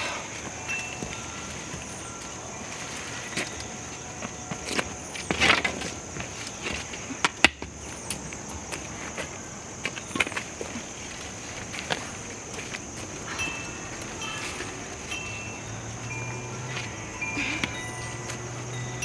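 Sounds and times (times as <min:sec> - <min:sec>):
high insect trill: 0:00.0 - 0:19.0
rustling: 0:00.0 - 0:19.0.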